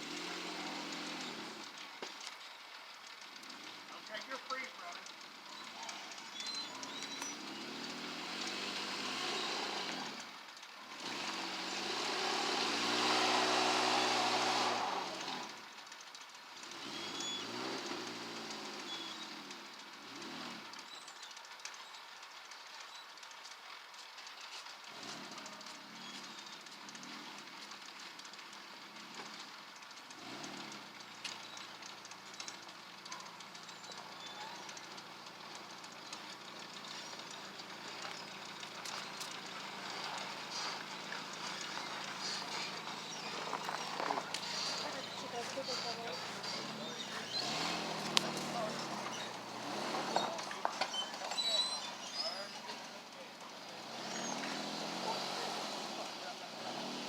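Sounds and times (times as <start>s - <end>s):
ice storm hiss and ticks: 0.0s - 12.0s, 12.6s - 57.0s
cars passing by: 0.0s - 57.0s.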